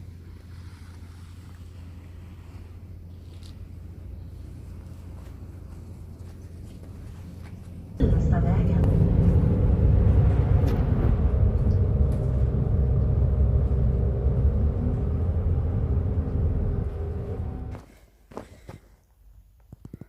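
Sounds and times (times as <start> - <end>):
large vehicle engine rumbling: 3.6 - 17.9.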